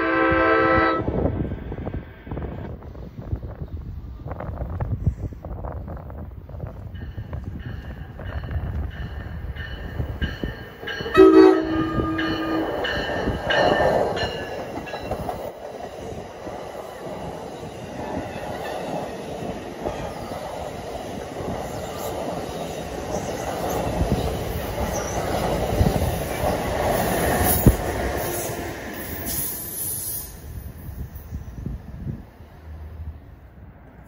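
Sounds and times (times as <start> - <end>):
train horn: 0.0 - 1.3, 11.1 - 12.9
train wheels rumbling and clattering: 1.1 - 32.8.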